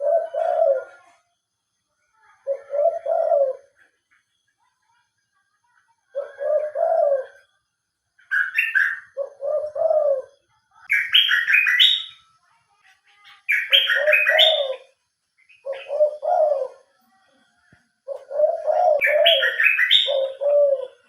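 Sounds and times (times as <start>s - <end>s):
birds cooing: 0.0s - 1.1s, 2.4s - 3.9s, 6.1s - 7.5s, 8.3s - 12.1s, 13.5s - 14.9s, 15.5s - 16.9s, 18.0s - 21.0s
birds calling with stepped notes: 13.1s - 16.7s.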